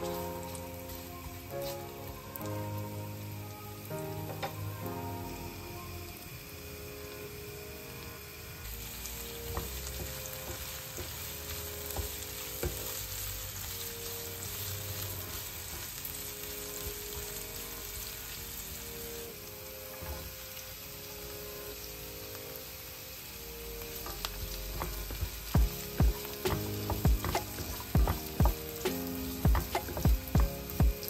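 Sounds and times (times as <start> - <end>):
onion sizzling in hot oil: 0.0 - 31.0
wooden spatula tapping and scraping: 9.6 - 13.0, 24.1 - 31.0.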